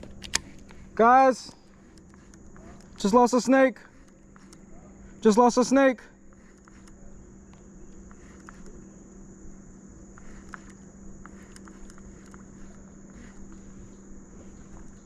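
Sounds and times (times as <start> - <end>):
high-pitched insect drone: 0.0 - 15.0
low steady hum: 0.0 - 15.0
faint clicks and rustles: 10.1 - 15.0.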